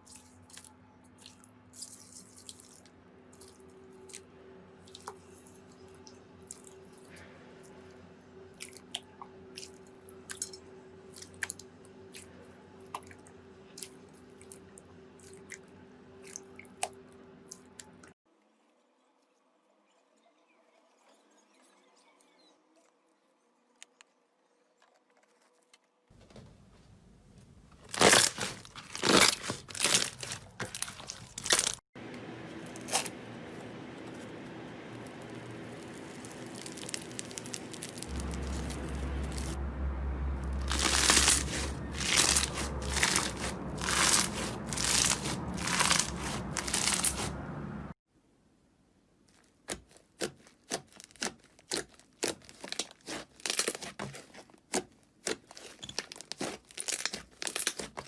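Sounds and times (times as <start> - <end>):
slime crackling and popping: 27.8 - 31.8, 34.9 - 39.6, 40.5 - 47.3, 49.6 - 58.0.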